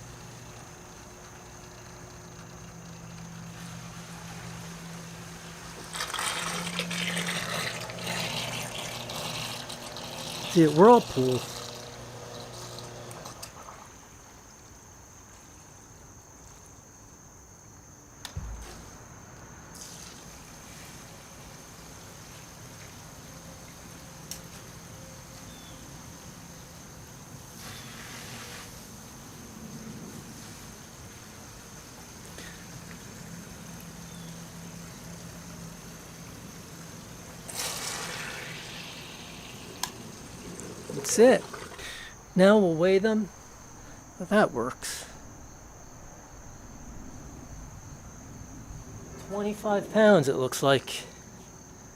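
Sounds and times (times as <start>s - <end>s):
pump motor hum: 0.0s - 14.2s, 18.3s - 44.7s
faint trickling water: 32.2s - 42.2s.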